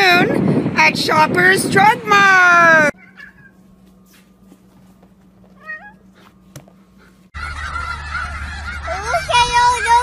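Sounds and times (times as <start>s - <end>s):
cat meowing: 3.0s - 3.6s, 5.6s - 6.0s.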